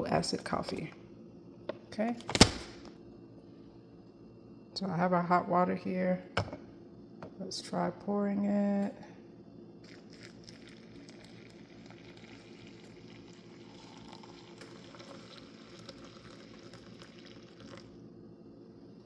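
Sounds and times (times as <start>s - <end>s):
water trickling over coffee: 9.8s - 17.9s.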